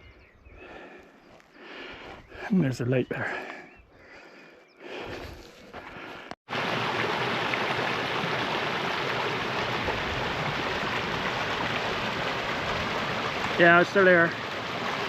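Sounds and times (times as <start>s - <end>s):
river running over rocks: 6.5s - 15.0s.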